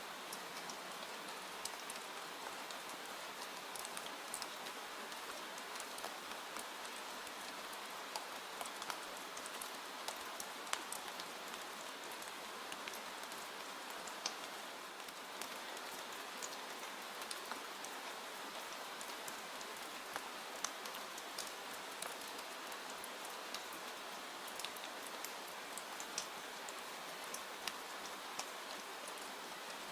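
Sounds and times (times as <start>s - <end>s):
steady rain: 0.0s - 29.9s
raindrops ticking: 20.6s - 29.4s.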